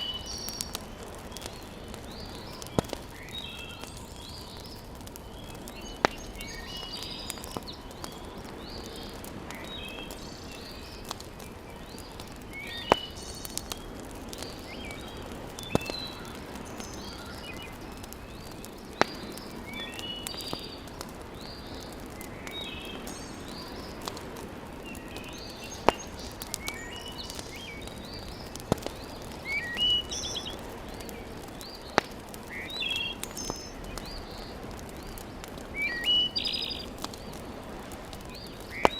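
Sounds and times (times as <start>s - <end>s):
fire crackling and popping: 0.0s - 38.9s
birds chirping and singing: 24.9s - 34.5s, 35.8s - 36.9s.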